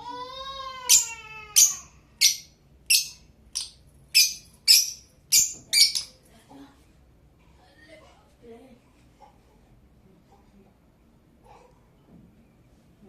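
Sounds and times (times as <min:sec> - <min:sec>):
lovebird shrill chirps: 0:00.9 - 0:06.2.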